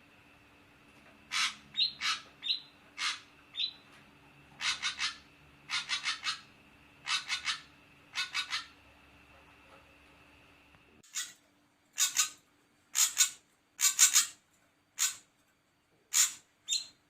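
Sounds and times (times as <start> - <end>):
bird calling harsh scratchy notes: 1.3 - 3.8, 4.6 - 8.8, 13.0 - 14.4.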